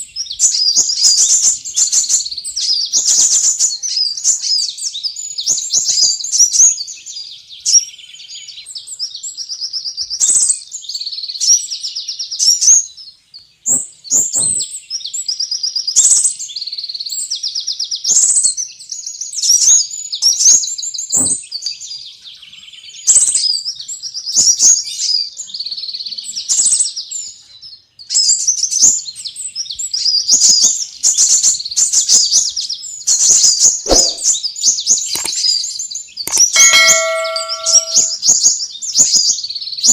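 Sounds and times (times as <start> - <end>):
sunbirds chirping and trilling: 0.0 - 39.9
clicks: 35.2 - 35.4, 36.3 - 38.2.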